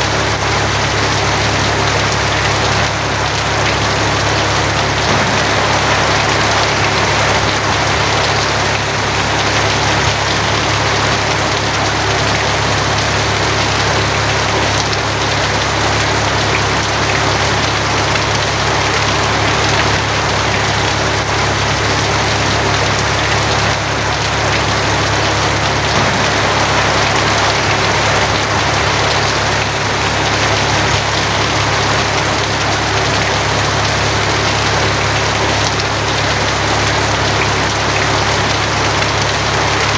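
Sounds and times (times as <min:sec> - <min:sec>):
heavy rain on a tin roof: 0:00.0 - 0:39.9
low rumble: 0:05.1 - 0:09.5, 0:25.9 - 0:30.6.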